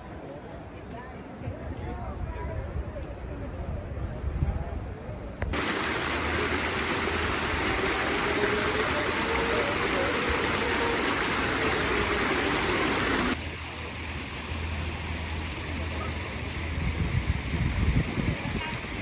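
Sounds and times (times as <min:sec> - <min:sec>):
rushing water: 0:05.5 - 0:19.0.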